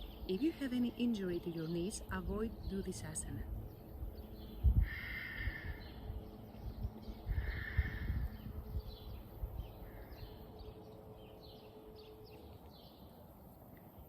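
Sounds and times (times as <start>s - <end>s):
harsh drawn-out bird calls: 1.5s - 12.4s.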